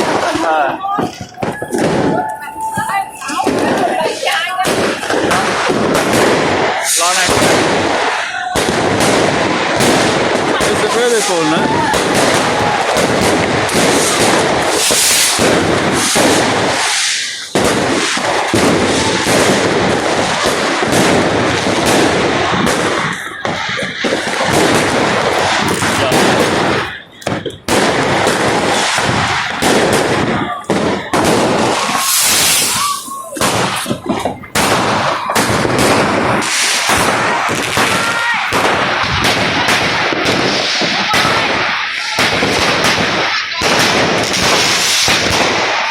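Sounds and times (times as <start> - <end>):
rising firework whistles: 0.0 - 5.2, 10.9 - 21.2, 21.8 - 42.7
fireworks and firecrackers banging: 0.0 - 45.9.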